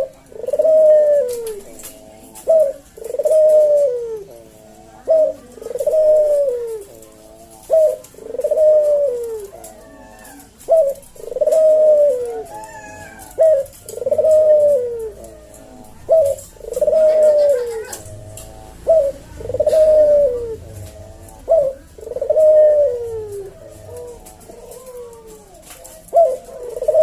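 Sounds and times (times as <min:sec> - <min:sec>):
dove cooing: 0:00.0 - 0:27.0.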